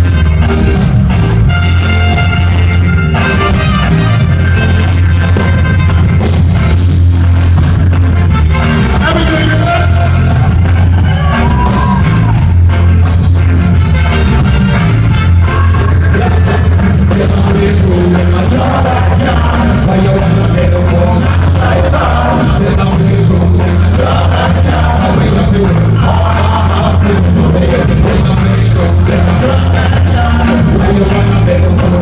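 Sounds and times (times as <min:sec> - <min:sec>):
live band music: 0:00.0 - 0:32.0
person singing: 0:15.4 - 0:32.0.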